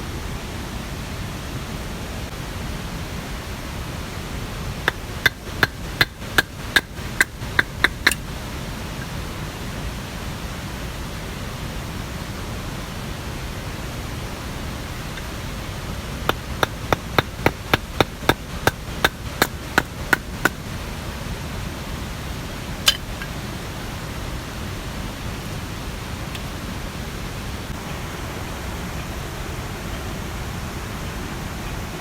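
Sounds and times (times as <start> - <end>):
rushing water: 0.0 - 32.0
sharp knocks: 4.9 - 8.2, 16.3 - 20.6.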